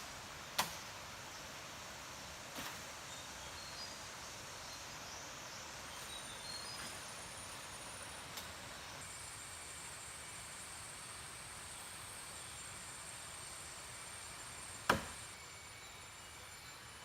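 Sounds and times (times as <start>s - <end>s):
outdoor background hiss: 0.0s - 17.0s
thin high steady tone: 15.3s - 17.0s.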